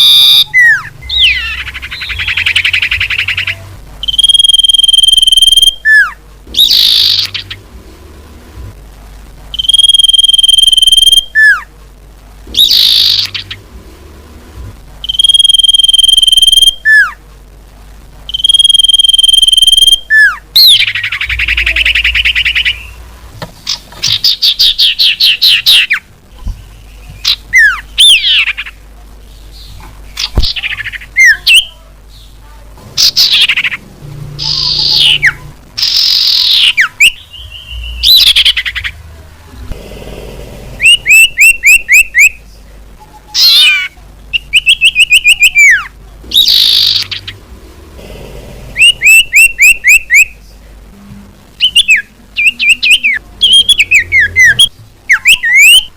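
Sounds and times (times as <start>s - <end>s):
bird song whistles and trills: 0.0s - 7.6s, 9.6s - 11.7s, 12.6s - 13.6s, 15.0s - 17.2s, 18.3s - 23.0s, 24.0s - 28.8s, 34.4s - 38.9s, 40.8s - 42.4s, 43.0s - 47.4s, 48.8s - 50.4s, 51.6s - 55.9s.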